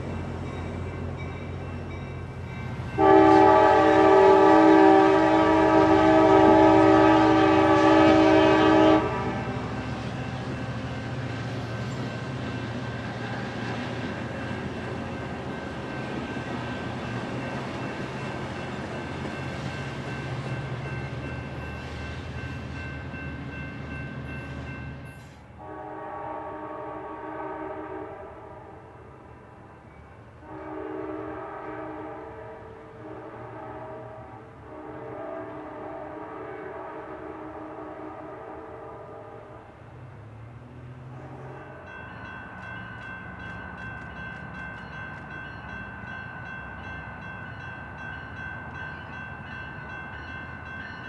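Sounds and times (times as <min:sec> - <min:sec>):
train running with low hum: 0:00.0 - 0:51.0
train air horn: 0:03.0 - 0:09.8, 0:25.6 - 0:29.3, 0:30.4 - 0:39.8, 0:41.0 - 0:41.8.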